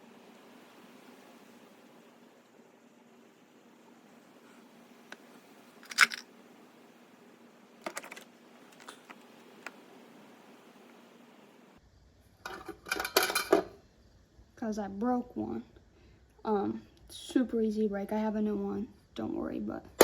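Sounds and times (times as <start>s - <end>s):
clatter of metal parts: 5.8s - 6.3s, 12.4s - 13.7s.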